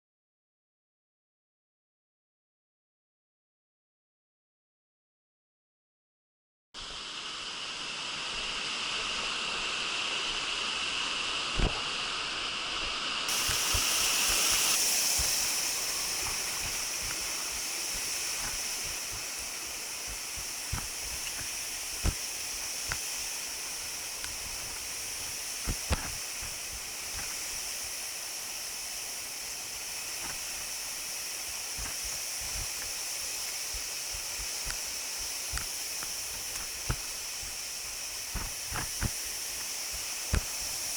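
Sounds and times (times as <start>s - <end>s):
waterfall water rushing: 6.9s - 40.9s.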